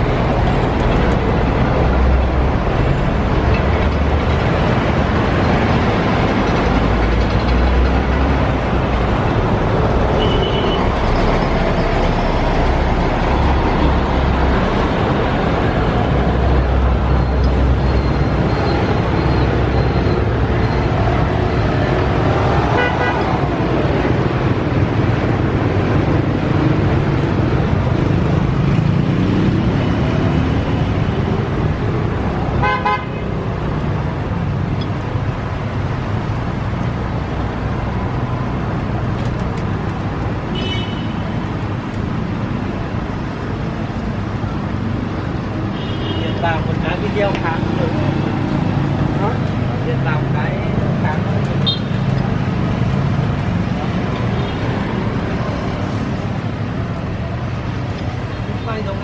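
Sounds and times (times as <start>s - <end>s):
traffic noise: 0.0s - 59.0s.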